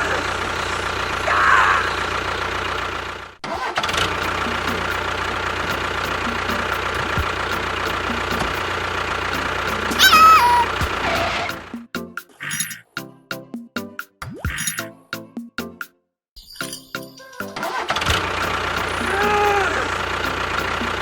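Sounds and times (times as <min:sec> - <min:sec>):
small motor running: 0:00.0 - 0:11.6, 0:18.0 - 0:21.0
short high voice-like call: 0:09.9 - 0:11.5, 0:19.0 - 0:20.0.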